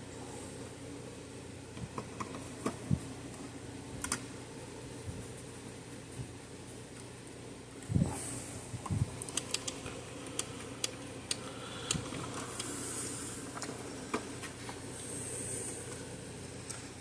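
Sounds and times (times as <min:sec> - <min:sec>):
steady low hum: 0:00.0 - 0:17.0
clicks and taps of wiring: 0:04.0 - 0:04.2.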